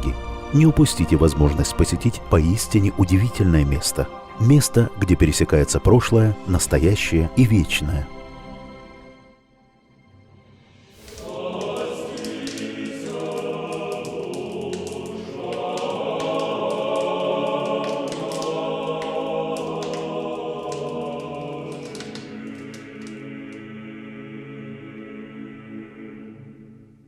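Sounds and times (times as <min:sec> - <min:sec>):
choir singing a chant: 0:11.0 - 0:27.0.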